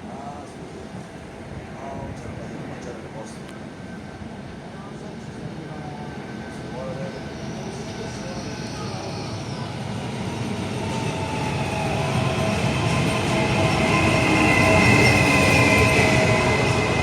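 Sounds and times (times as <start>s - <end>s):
train rumble: 0.0s - 17.0s
high steady brake squeal: 6.4s - 17.0s.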